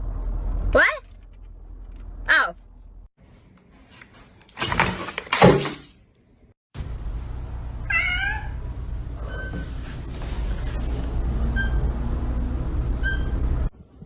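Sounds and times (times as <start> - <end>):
cat meowing: 7.8 - 9.5.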